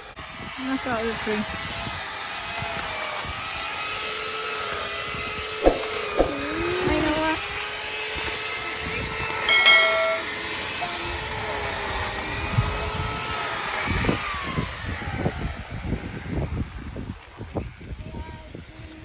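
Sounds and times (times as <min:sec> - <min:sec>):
wind gusts buffeting microphone: 0:05.1 - 0:07.6, 0:11.0 - 0:19.0
strong wind rushing: 0:05.6 - 0:07.4
faint steady tones: 0:09.5 - 0:10.4.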